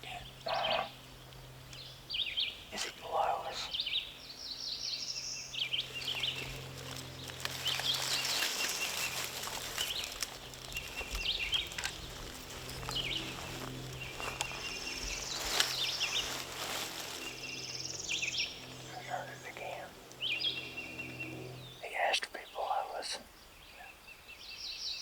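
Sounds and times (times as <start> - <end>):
songbirds chirping and singing: 0.0 - 25.0
light rustling: 5.7 - 19.3.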